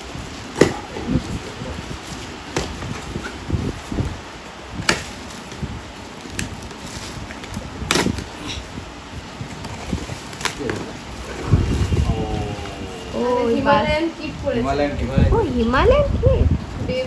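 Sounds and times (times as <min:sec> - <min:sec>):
rustling and bumping: 0:00.0 - 0:12.8
cardboard parcel snapping: 0:04.8 - 0:08.6, 0:09.5 - 0:11.8.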